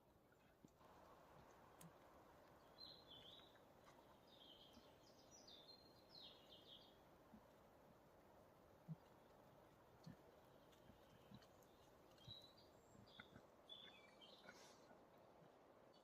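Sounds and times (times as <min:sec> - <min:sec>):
low steady hiss: 0:00.0 - 0:16.0
small bird chirping: 0:10.6 - 0:14.6.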